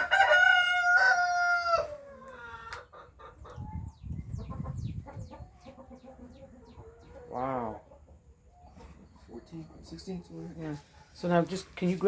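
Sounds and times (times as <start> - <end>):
rooster crowing: 0.0 - 2.2.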